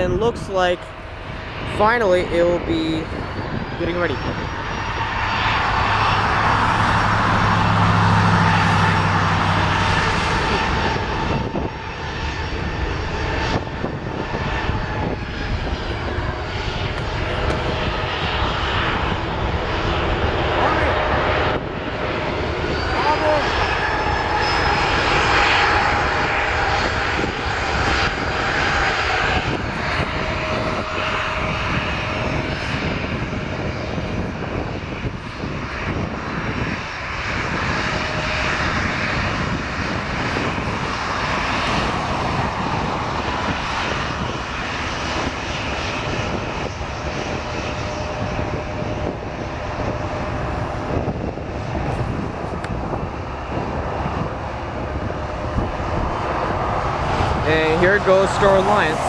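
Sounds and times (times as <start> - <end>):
faint engine whine: 0.0 - 59.0
jet engines roaring: 0.0 - 59.0.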